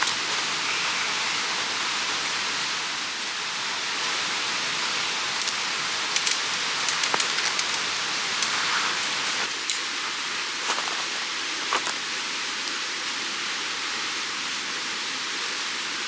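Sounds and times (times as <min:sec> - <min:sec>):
mountain stream rushing: 0:00.0 - 0:16.0
sharp clicks and ticks: 0:05.4 - 0:09.8.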